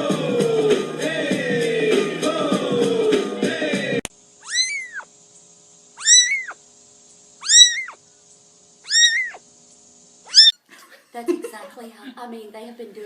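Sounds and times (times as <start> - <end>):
cat meowing: 4.4 - 5.1, 6.0 - 6.6, 7.4 - 8.0, 8.8 - 9.4, 10.3 - 10.6.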